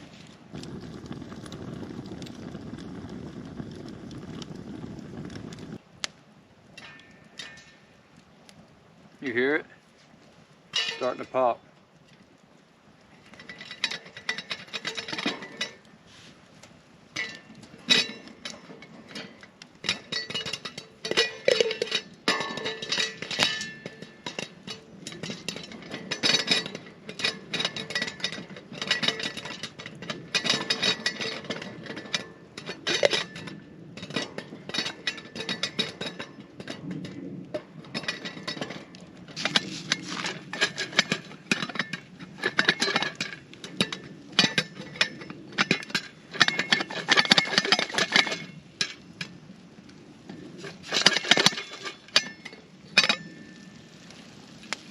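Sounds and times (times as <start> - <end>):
popcorn popping in a pan: 17.1 - 49.4.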